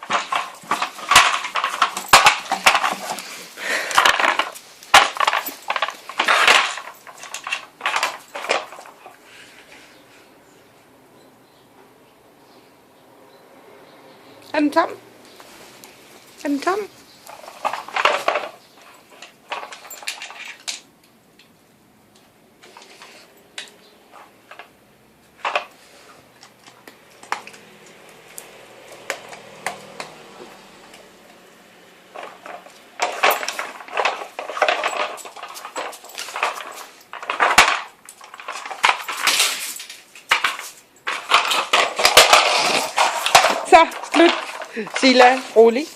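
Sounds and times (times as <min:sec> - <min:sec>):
treat puzzle toy clattering: 0:00.0 - 0:09.2, 0:16.5 - 0:20.9, 0:32.1 - 0:45.9.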